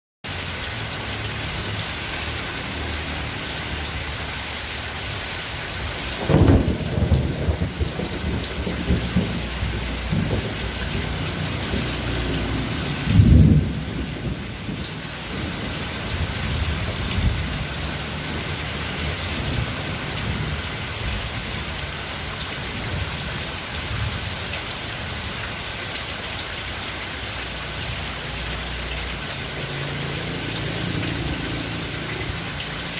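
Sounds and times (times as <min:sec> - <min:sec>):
steady rain falling: 0:00.2 - 0:32.9
thunder clap and rumble: 0:06.0 - 0:21.7.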